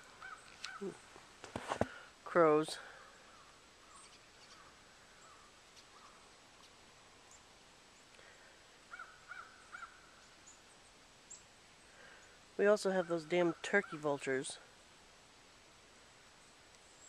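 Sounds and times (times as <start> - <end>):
distant crows cawing: 0.1 - 0.9, 8.9 - 10.2.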